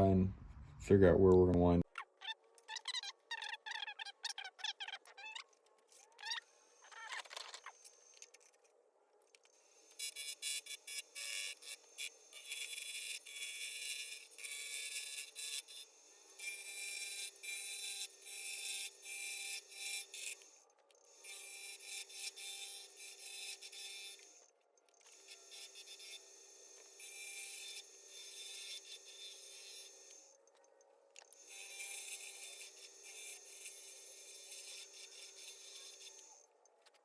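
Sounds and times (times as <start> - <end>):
steady low hum: 0.0 - 1.8
lathe tool cutting wood: 21.3 - 24.4, 25.1 - 30.2, 31.4 - 36.4.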